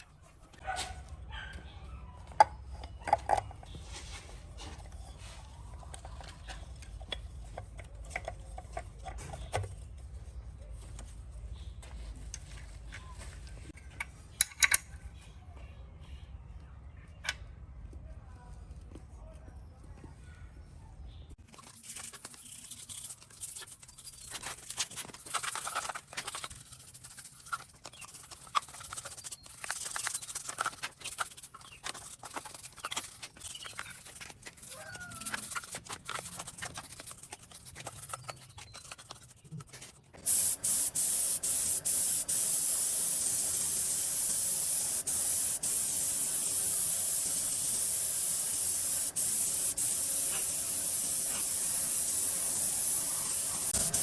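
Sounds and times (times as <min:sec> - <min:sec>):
spray gun hissing: 0:40.3 - 0:54.0.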